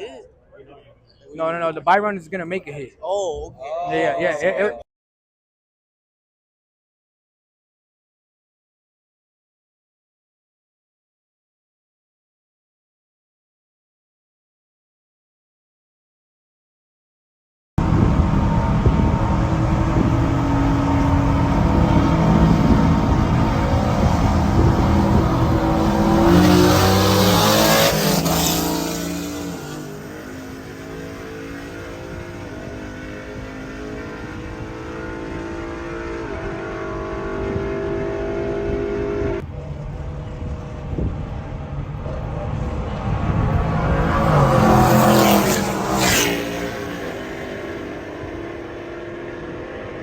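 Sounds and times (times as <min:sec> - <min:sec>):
car engines at full throttle: 0:17.8 - 0:50.0
quieter engine building: 0:17.8 - 0:50.0.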